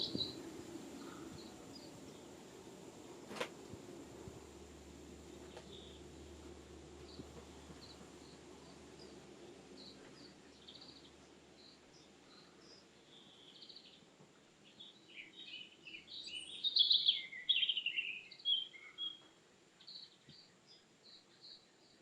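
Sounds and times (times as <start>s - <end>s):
bird singing varied notes: 0.0s - 2.4s, 14.7s - 19.2s.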